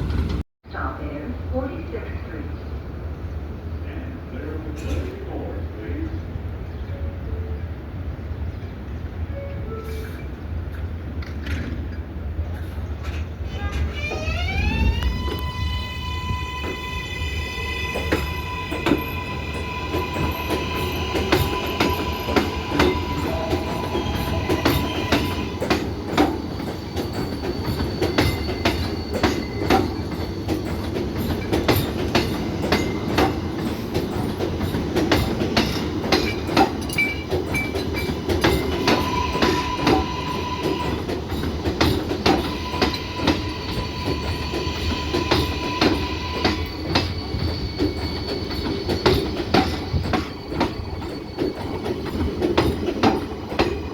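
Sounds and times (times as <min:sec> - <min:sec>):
subway train rumble: 0:00.0 - 0:53.9.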